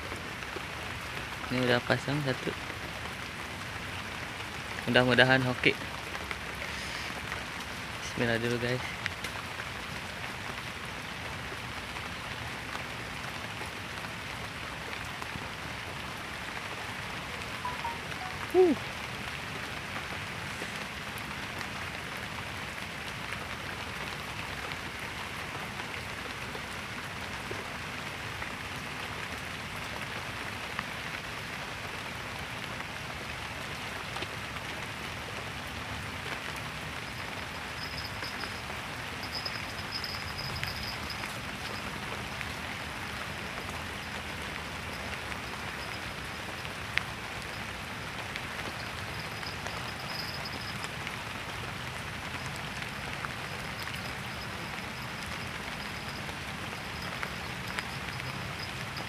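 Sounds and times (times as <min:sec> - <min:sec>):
steady rain falling: 0:00.0 - 0:59.0
short sound falling in pitch: 0:17.7 - 0:18.8.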